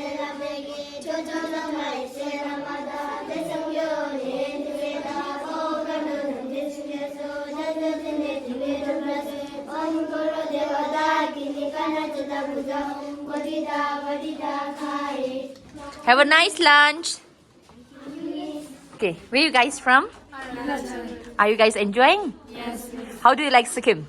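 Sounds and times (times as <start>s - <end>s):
children chanting in unison: 0.0s - 16.1s, 17.9s - 18.9s, 20.3s - 21.4s, 22.4s - 23.3s.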